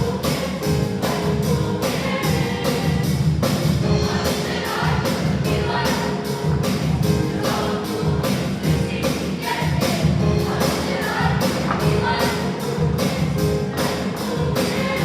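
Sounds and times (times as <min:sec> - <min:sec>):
accompaniment with steady beat: 0:00.0 - 0:15.0
choir singing: 0:00.0 - 0:15.0.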